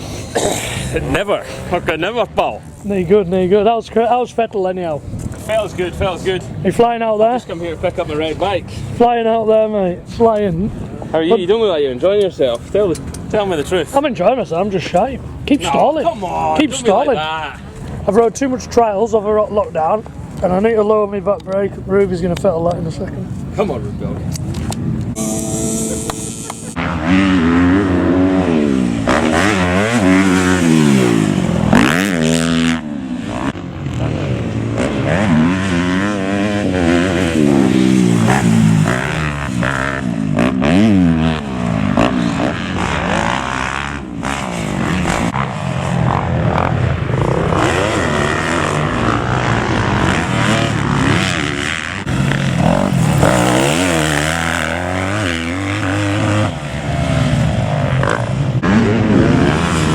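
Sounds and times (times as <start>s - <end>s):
motocross bikes revving: 0.0s - 59.9s
second motorbike engine: 24.7s - 59.9s.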